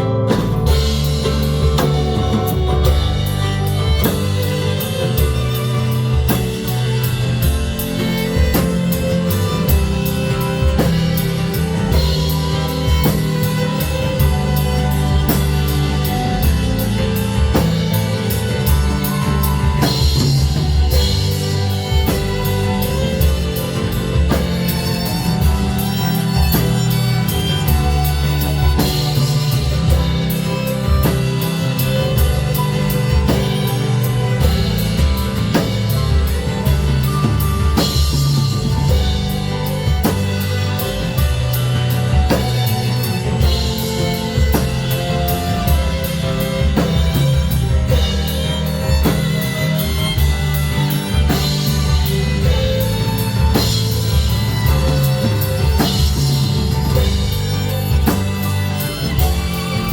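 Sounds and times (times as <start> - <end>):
drum kit steady beat: 0.0 - 59.9
live pop-rock band: 0.0 - 59.9.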